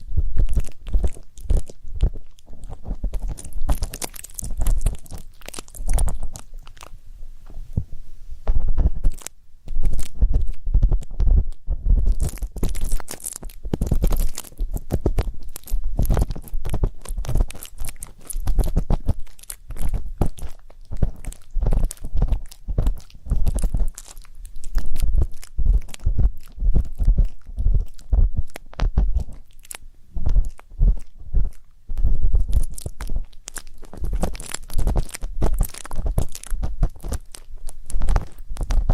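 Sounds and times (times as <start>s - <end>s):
low thumps: 7.4s - 9.1s.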